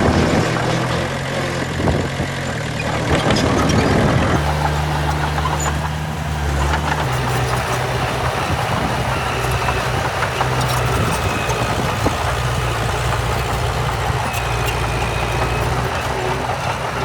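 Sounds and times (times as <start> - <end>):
heavy diesel engine running: 4.4 - 17.0.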